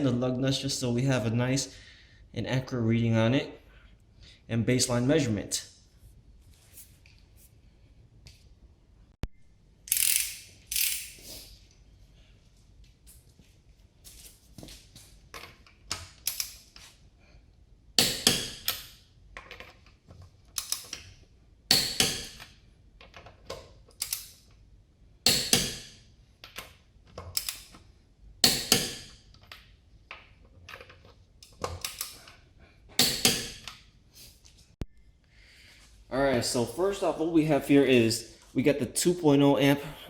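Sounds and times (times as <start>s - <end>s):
torque wrench ratchet clicks: 9.9s - 11.2s.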